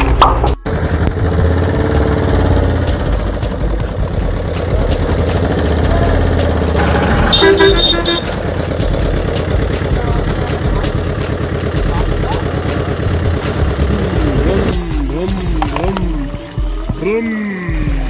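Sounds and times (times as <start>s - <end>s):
vehicle engine rumbling: 0.0s - 18.0s
horn short beeps: 7.3s - 8.4s.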